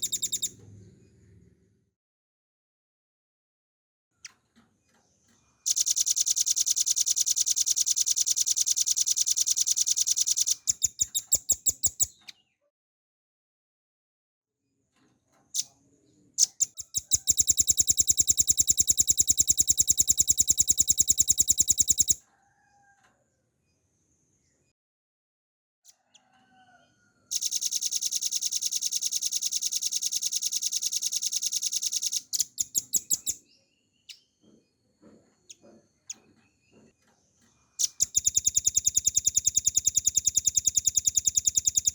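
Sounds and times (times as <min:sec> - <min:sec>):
bird singing fast high trills: 0:00.0 - 0:00.5, 0:05.7 - 0:12.1, 0:16.4 - 0:22.2.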